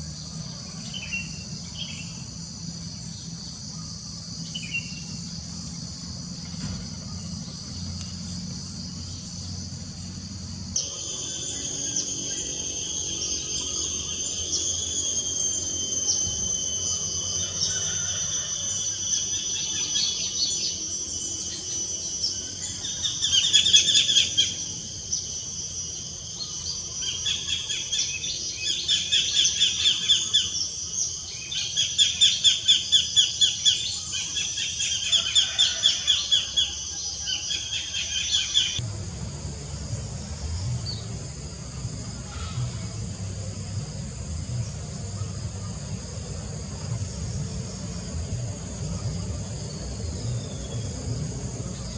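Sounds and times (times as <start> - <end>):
insects droning: 0.0 - 51.9.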